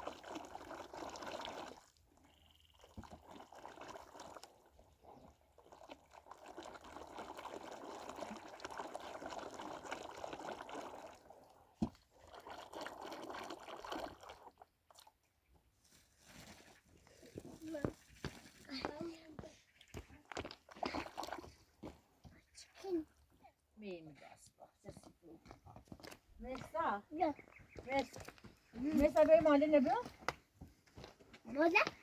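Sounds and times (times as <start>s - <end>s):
liquid pouring and sloshing: 0.0s - 15.4s, 20.3s - 22.0s.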